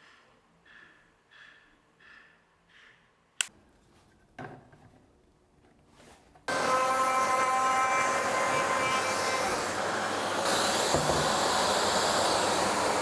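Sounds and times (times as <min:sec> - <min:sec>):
palm router whining: 0:06.5 - 0:13.0.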